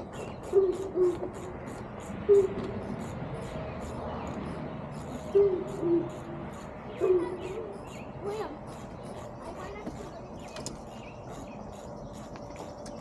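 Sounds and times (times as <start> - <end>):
low hooting calls: 2.3 - 8.8.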